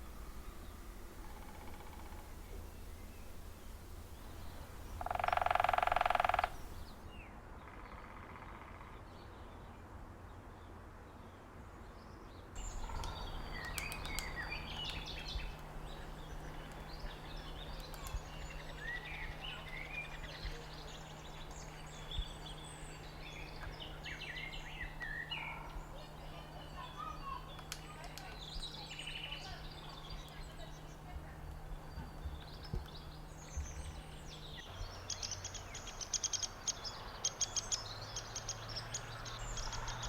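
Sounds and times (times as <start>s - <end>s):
drawn-out bird call: 0.0s - 7.0s
low steady hum: 0.0s - 7.1s, 12.6s - 40.0s.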